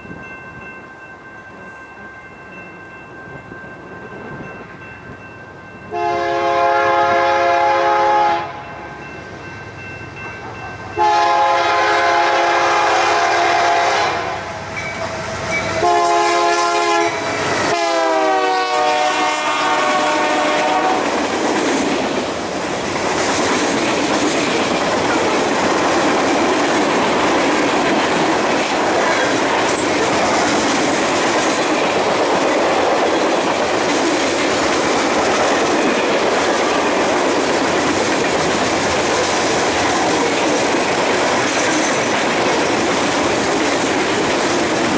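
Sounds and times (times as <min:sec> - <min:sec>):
locomotive air horn: 0:05.9 - 0:08.7, 0:11.0 - 0:21.1
train wheels clickety-clack: 0:19.0 - 0:44.9.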